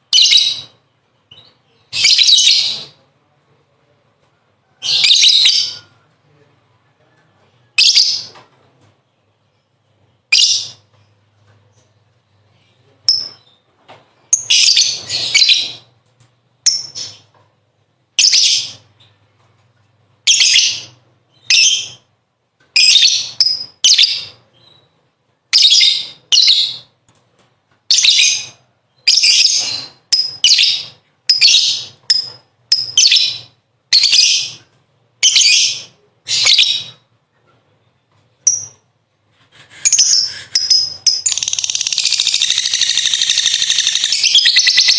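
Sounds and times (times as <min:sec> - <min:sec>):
lovebird chattering: 0:39.8 - 0:44.9.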